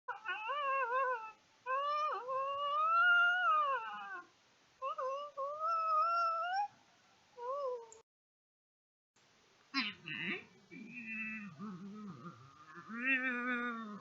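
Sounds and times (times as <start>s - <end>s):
long wavering howls: 10.8s - 14.0s.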